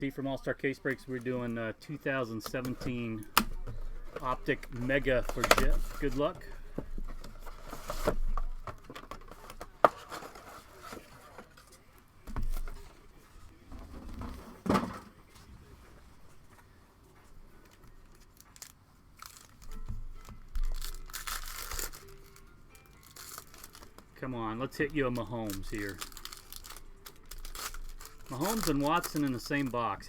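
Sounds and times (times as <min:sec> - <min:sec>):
plastic wrappers crinkling and tearing: 0:02.5 - 0:11.3, 0:17.6 - 0:30.0.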